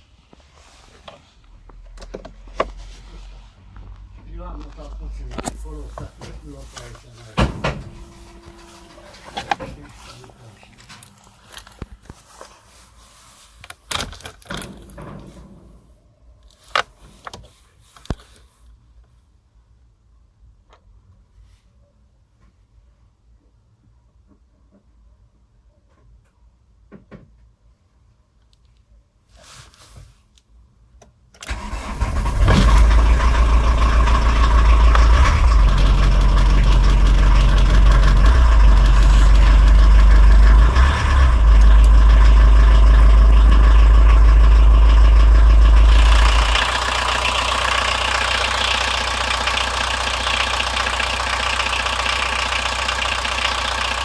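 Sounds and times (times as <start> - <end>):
diesel engine starting and running: 1.5 - 11.9, 31.4 - 54.0.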